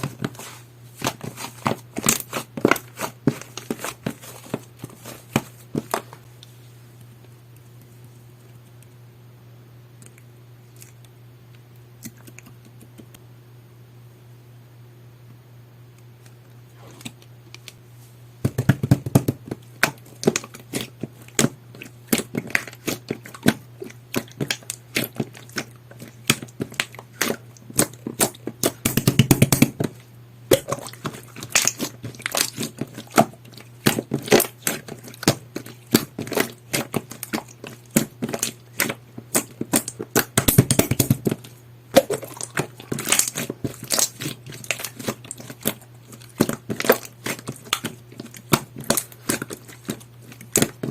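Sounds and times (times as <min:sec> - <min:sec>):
faint low hum: 0:00.0 - 0:50.9
slime squished by hand: 0:18.8 - 0:50.9.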